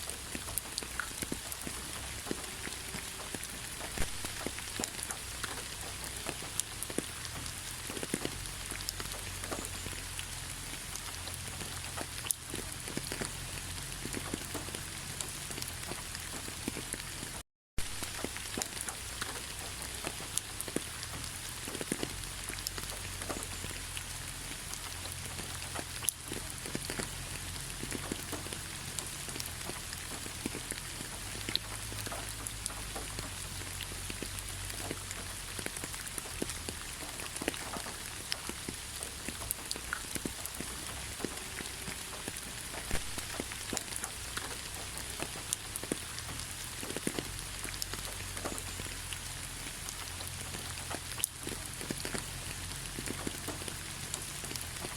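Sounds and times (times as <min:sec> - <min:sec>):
rain falling: 0:00.0 - 0:54.9.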